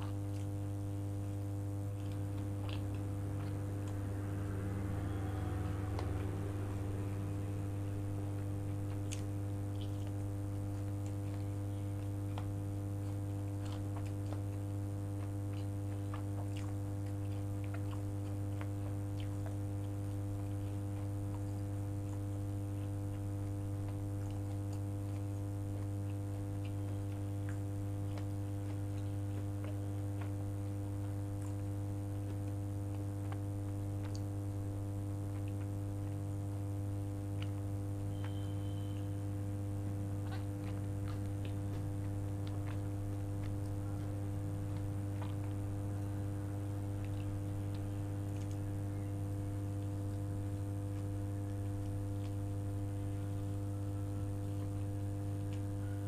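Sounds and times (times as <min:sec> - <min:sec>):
loud steady low hum: 0:00.0 - 0:56.0
person chewing food: 0:00.0 - 0:56.0.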